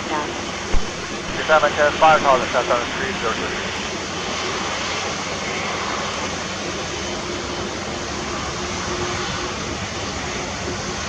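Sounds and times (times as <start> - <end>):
faint hum: 0.0 - 4.3
jet engines roaring: 0.0 - 11.0.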